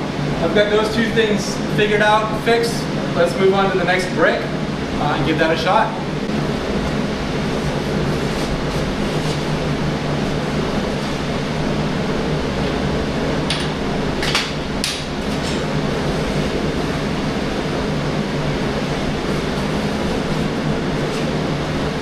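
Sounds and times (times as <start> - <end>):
welding arc buzzing: 4.6 - 22.0.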